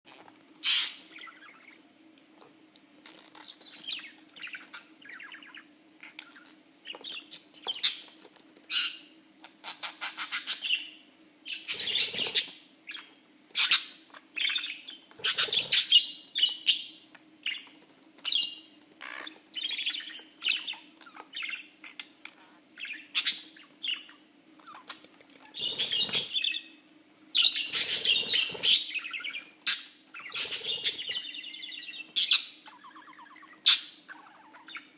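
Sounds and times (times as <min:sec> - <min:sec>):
faint steady hum: 0:00.1 - 0:34.9
budgerigar chirping and warbling: 0:00.6 - 0:01.8, 0:11.5 - 0:16.9, 0:25.5 - 0:26.7, 0:27.4 - 0:34.9.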